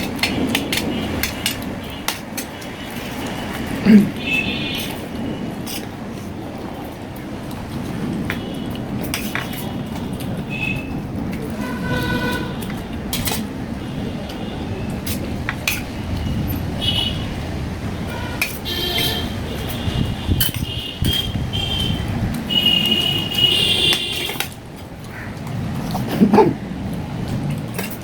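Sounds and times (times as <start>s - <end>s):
short high horn toots: 11.6s - 12.6s.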